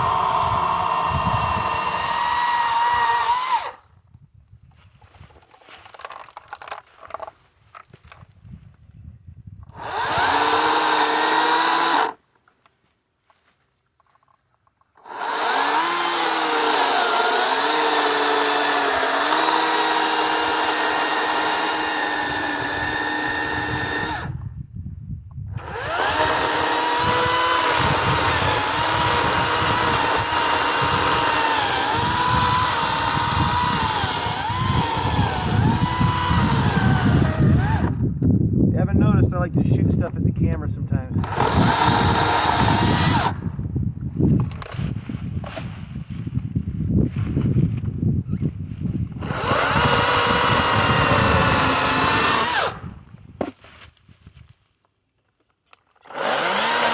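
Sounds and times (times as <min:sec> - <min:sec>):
electric chainsaw cutting wood: 0:00.0 - 0:03.8, 0:09.8 - 0:12.2, 0:15.0 - 0:24.4, 0:25.5 - 0:38.0, 0:41.2 - 0:43.5, 0:49.2 - 0:53.0, 0:56.0 - 0:56.9.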